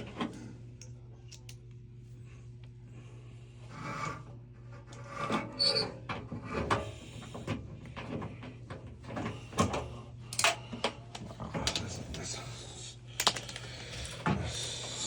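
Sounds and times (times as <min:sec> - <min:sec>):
steady low hum: 0:00.0 - 0:15.0
tools and metal parts clinking: 0:13.2 - 0:14.1.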